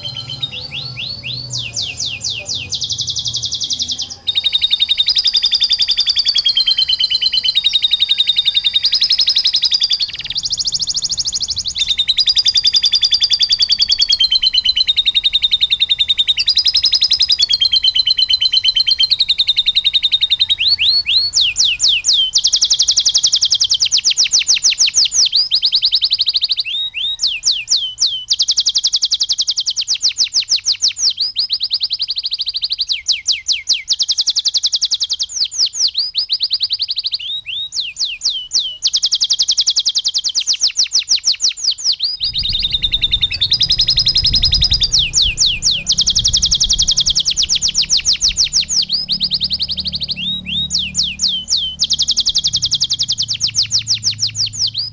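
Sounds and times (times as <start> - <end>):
canary singing trills: 0.0 - 54.9
low hum: 42.2 - 54.9.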